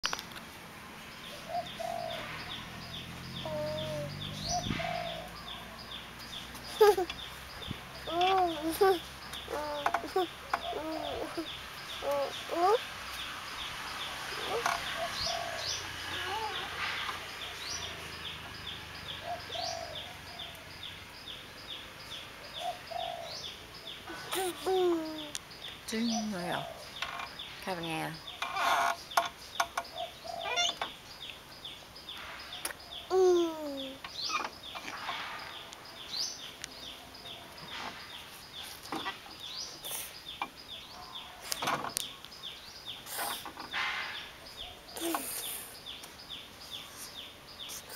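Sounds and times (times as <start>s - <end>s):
birds cooing: 1.3s - 12.8s, 14.0s - 21.3s, 22.5s - 27.4s, 28.3s - 31.0s, 32.5s - 46.0s
dove cooing: 1.5s - 2.3s, 3.4s - 5.6s, 8.1s - 12.8s, 14.4s - 16.8s, 19.2s - 20.5s, 22.6s - 23.4s.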